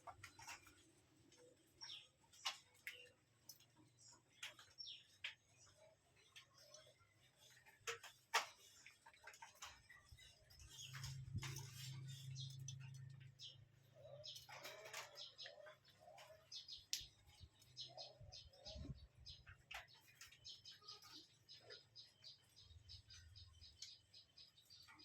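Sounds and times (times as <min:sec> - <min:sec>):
faint bird chirps: 0:09.6 - 0:25.0.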